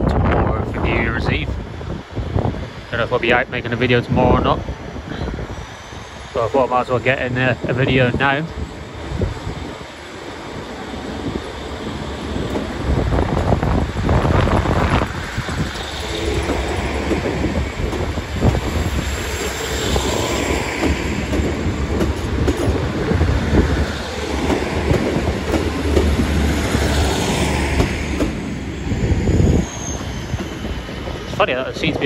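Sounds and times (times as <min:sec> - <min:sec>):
train wheels clattering over joints: 0:15.0 - 0:28.6.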